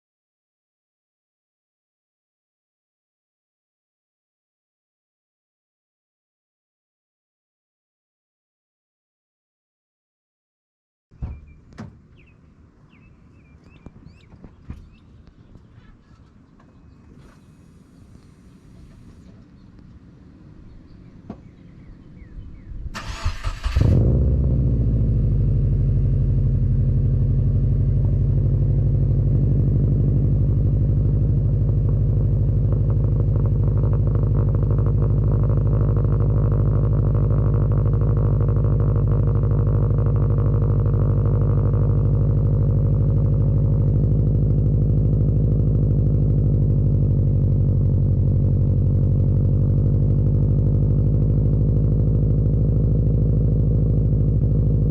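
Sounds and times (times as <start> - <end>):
car engine idle rumble: 11.2 - 54.9
engine starter cranking: 23.0 - 24.0.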